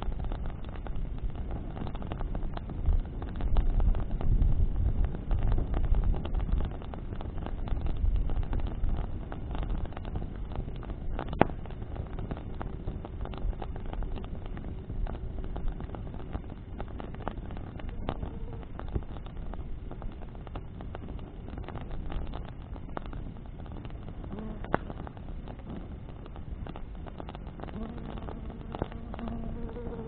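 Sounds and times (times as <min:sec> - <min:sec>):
bonfire crackling and popping: 0:00.0 - 0:30.0
low wind rumble: 0:00.0 - 0:30.0.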